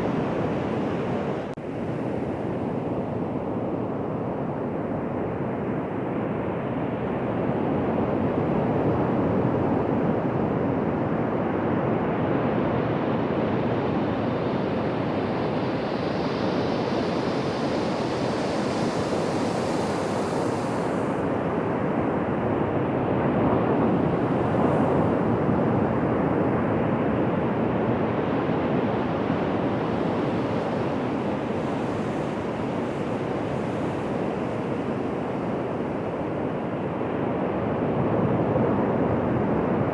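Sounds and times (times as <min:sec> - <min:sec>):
ocean surf washing onto beach: 0:16.0 - 0:21.9, 0:28.7 - 0:37.2.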